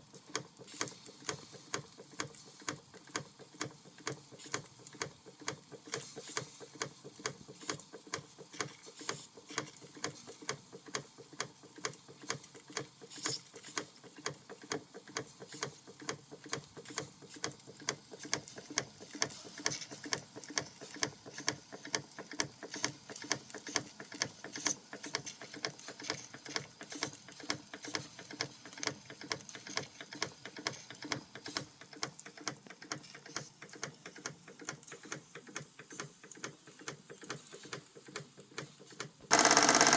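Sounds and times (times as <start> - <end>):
model steam engine ticking: 0.1 - 31.2, 39.3 - 39.9.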